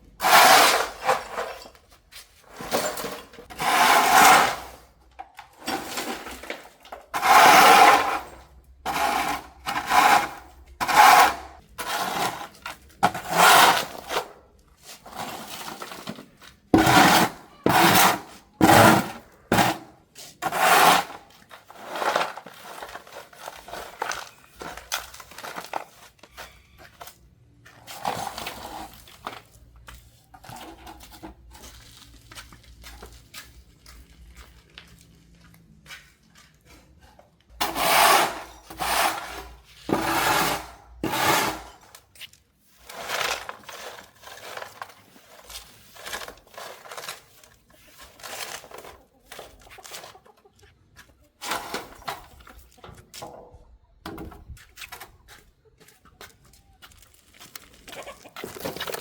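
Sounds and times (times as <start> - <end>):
scraping on hard surface: 0.0 - 34.5, 35.9 - 50.3, 51.0 - 53.5.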